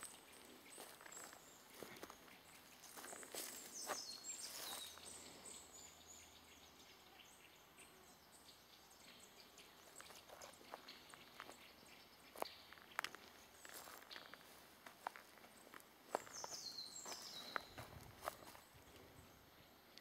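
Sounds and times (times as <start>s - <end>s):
footsteps on dry forest floor: 0.0s - 5.8s, 9.6s - 19.2s
faint bird chirps: 0.0s - 20.0s.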